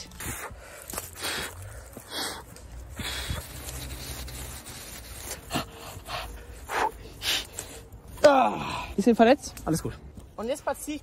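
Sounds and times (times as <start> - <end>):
wood rubbing and scraping: 2.6 - 6.4.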